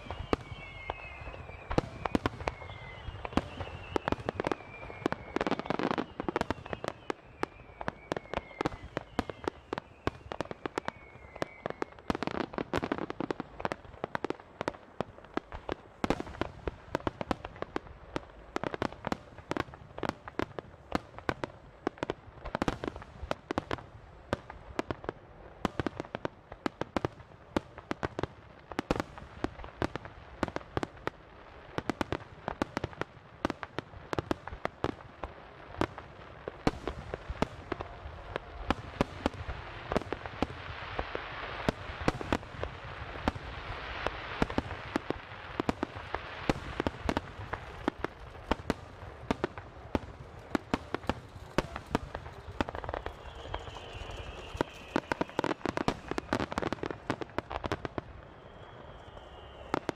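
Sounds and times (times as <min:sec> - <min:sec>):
fireworks barrage bangs: 0:35.8 - 0:59.9.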